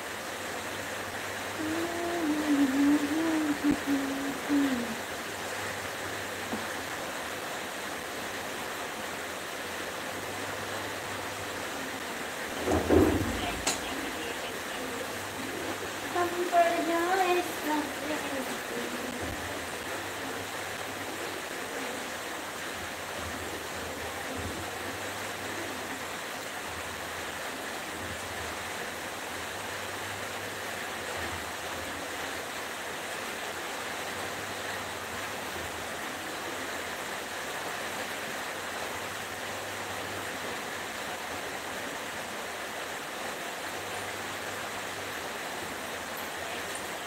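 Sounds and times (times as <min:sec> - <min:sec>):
wok cooking hiss: 0:00.0 - 0:29.2, 0:35.0 - 0:39.0.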